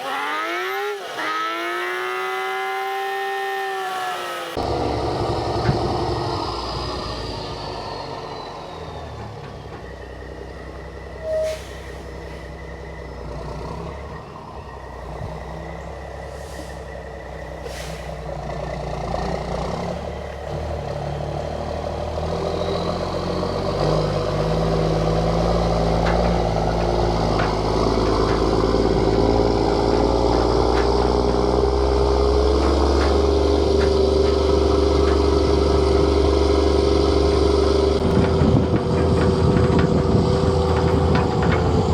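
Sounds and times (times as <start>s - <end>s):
truck diesel engine running: 4.6s - 41.9s
air brake hisses: 11.2s - 12.5s, 16.3s - 17.0s, 17.6s - 18.3s.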